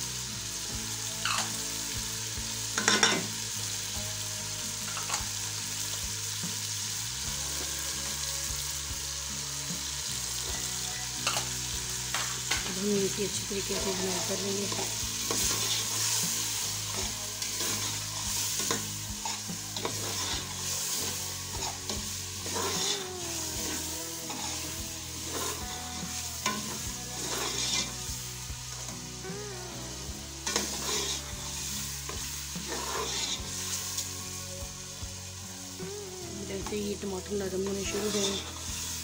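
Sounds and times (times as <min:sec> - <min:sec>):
masala sizzling in hot oil: 0:00.0 - 0:39.0
metal spoon scraping a pot: 0:18.6 - 0:23.0, 0:26.5 - 0:28.0, 0:30.4 - 0:31.4, 0:32.6 - 0:33.5, 0:37.6 - 0:38.7.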